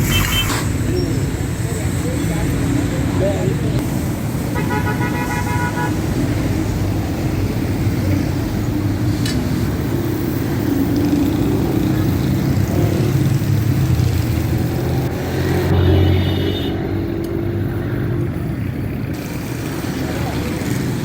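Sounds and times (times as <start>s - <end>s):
vehicle horn honking: 0.0s - 0.6s, 4.5s - 6.1s, 15.7s - 16.9s.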